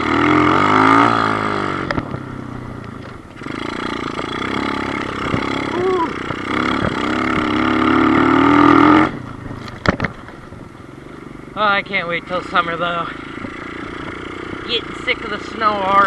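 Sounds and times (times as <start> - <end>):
small motorbike engine revving: 0.0 - 10.2.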